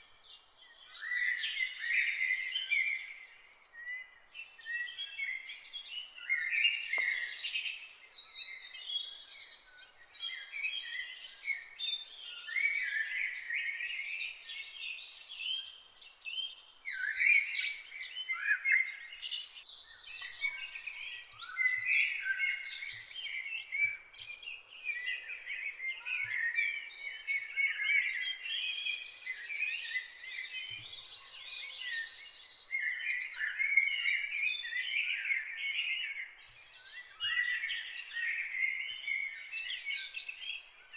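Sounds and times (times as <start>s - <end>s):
songbirds chirping and singing: 0.0s - 40.9s.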